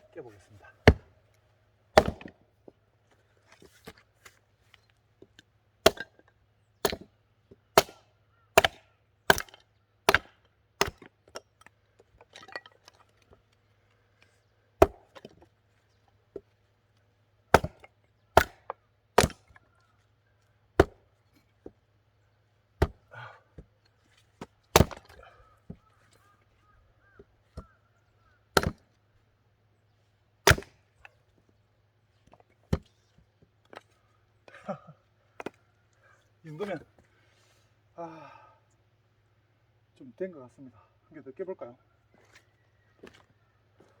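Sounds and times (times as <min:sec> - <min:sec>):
axe chopping wood: 0:00.8 - 0:01.2, 0:01.9 - 0:02.4, 0:05.8 - 0:06.2, 0:06.8 - 0:07.1, 0:07.7 - 0:11.5, 0:14.8 - 0:15.4, 0:17.5 - 0:19.6, 0:20.8 - 0:21.8, 0:22.8 - 0:23.7, 0:24.4 - 0:25.3, 0:28.5 - 0:28.9, 0:30.4 - 0:30.8.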